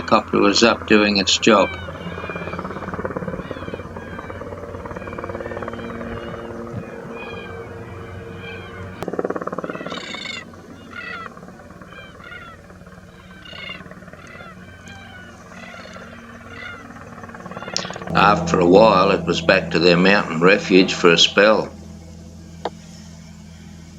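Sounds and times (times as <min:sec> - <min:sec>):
helicopter rotor and engine: 0:00.0 - 0:23.9
cockatoos calling harshly: 0:01.4 - 0:09.0, 0:09.6 - 0:18.1.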